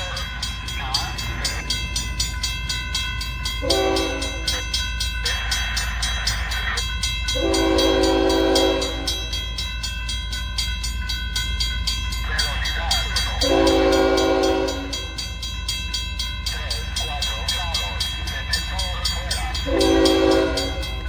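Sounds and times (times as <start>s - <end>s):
bell ringing rapidly: 0.0s - 21.0s
locomotive engine rumble: 0.0s - 21.0s
locomotive air horn blasts: 3.6s - 4.4s, 7.4s - 9.2s, 13.4s - 15.1s, 19.7s - 21.0s.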